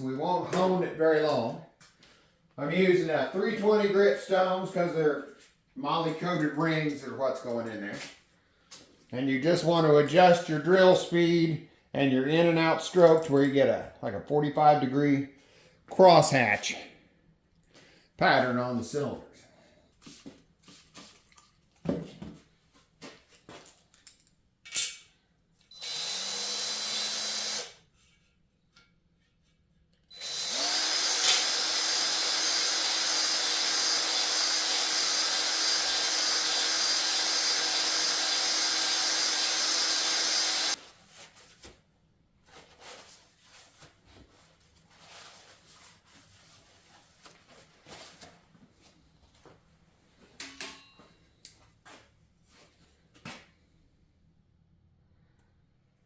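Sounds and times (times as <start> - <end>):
electric drill spinning a hone: 25.7 - 27.8, 30.1 - 40.8.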